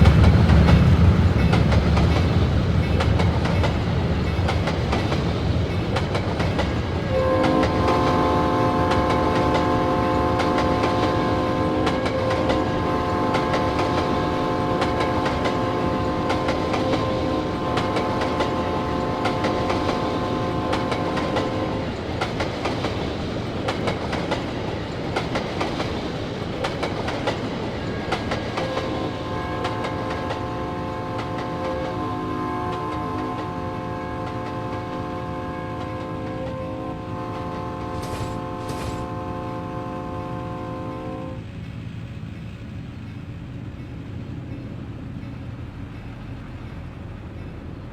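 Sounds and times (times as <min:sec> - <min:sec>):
train wheels clacking on rails: 0:00.0 - 0:39.5
locomotive air horn: 0:07.0 - 0:21.9, 0:28.6 - 0:41.4.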